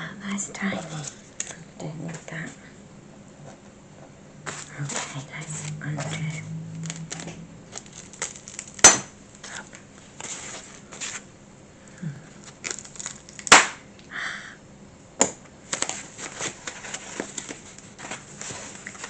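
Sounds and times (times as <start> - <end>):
plastic packaging crinkling: 4.5 - 11.3, 12.3 - 13.6, 15.6 - 19.0.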